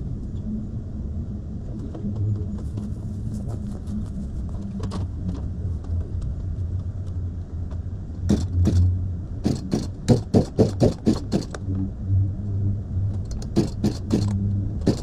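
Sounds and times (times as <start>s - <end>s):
low engine hum: 0.0s - 15.0s
knocks: 8.3s - 11.6s, 13.4s - 15.0s.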